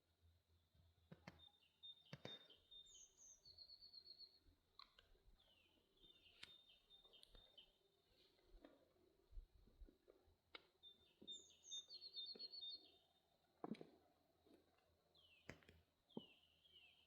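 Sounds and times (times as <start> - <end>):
faint bird chirps: 1.1 - 8.7, 10.6 - 14.0
bird trill: 10.8 - 13.1.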